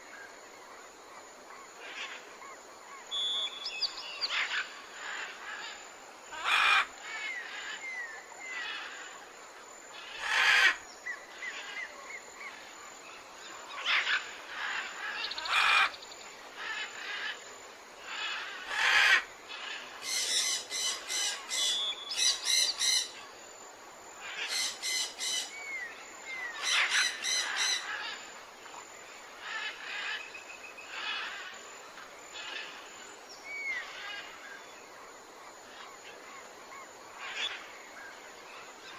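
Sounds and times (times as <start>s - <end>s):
birds calling: 24.2s - 28.2s.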